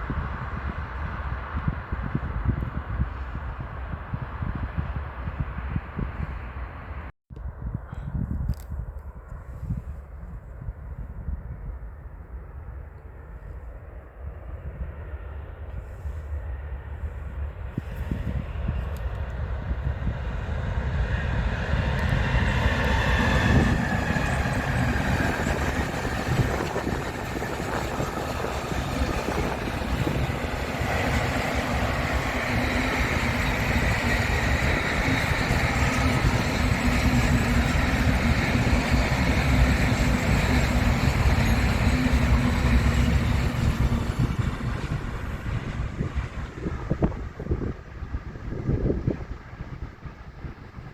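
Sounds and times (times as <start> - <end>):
train whine: 12.5 - 50.9
train rumbling past: 13.9 - 50.9.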